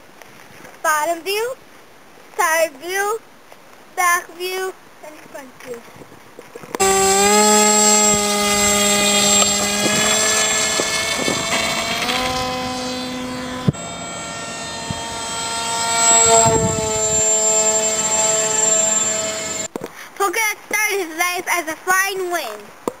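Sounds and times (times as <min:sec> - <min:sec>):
electric motor and propeller whining: 0:06.8 - 0:19.7.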